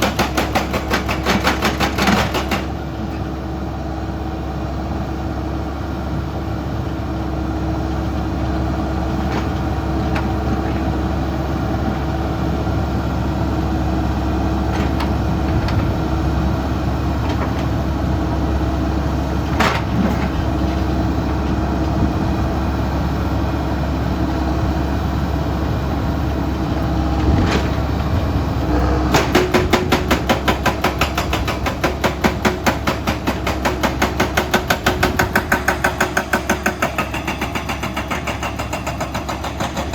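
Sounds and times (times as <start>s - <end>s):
excavator diesel engines running: 0.0s - 39.9s.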